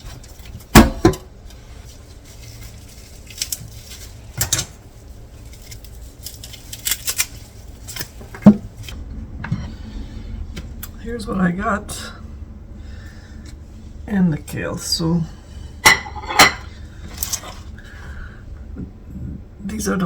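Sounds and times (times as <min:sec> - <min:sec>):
kitchen knocks and clinks: 0:15.8 - 0:16.7.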